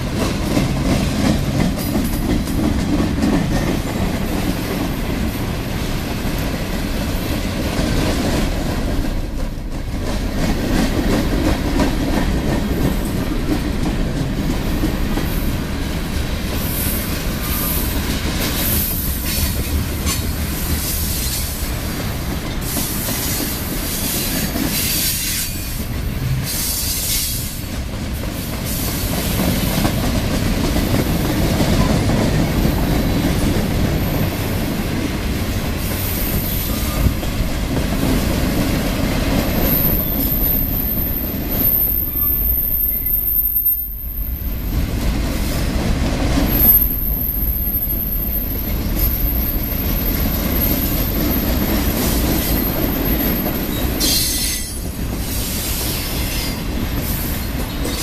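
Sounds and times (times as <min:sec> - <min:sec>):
freight cars rumbling on rails: 0:00.0 - 0:58.0
high-pitched wheel squeal: 0:39.6 - 0:44.5, 0:46.5 - 0:51.4.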